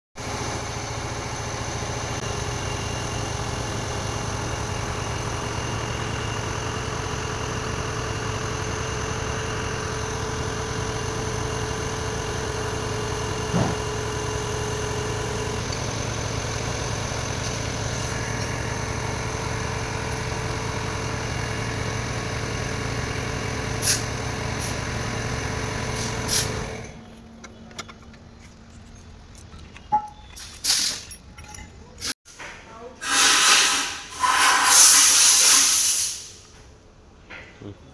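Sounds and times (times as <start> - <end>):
diesel engine idling: 0.2 - 29.9.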